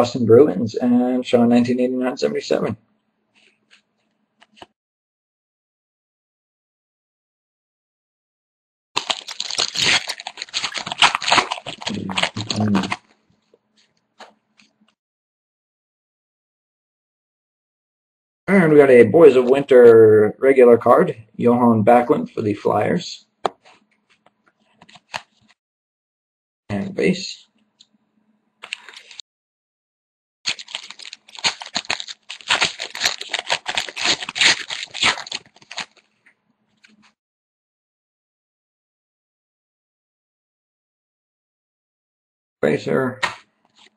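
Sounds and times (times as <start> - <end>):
foil wrapper crinkling and tearing: 9.0 - 13.1, 28.6 - 29.2, 30.5 - 36.1.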